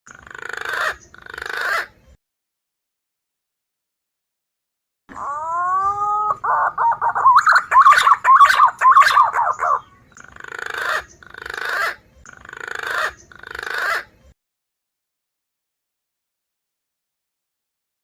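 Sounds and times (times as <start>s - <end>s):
recorded pigeon calls: 0.1s - 2.1s, 5.1s - 14.2s.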